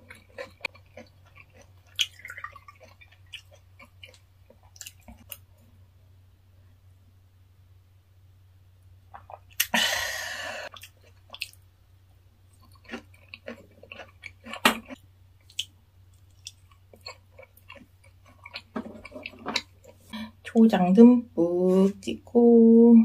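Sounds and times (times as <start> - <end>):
moist chewing and crunches: 0.0 - 5.4, 12.5 - 20.1
breathy exhale: 9.8 - 10.7.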